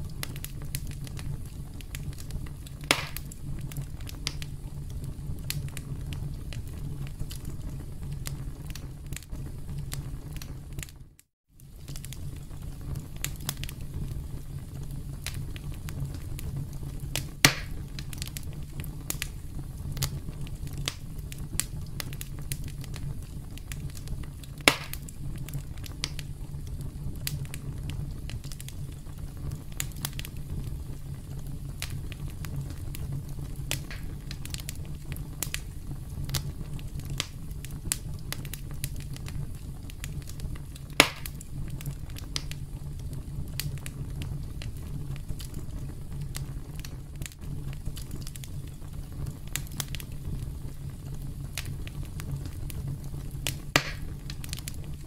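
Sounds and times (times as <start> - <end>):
campfire crackling: 0.0 - 11.0, 11.6 - 55.0
fire low rumble: 0.0 - 55.0
sharp loud fire pops: 2.8 - 3.4, 17.4 - 17.8, 24.6 - 25.1, 33.7 - 34.4, 41.0 - 41.4, 53.7 - 54.2.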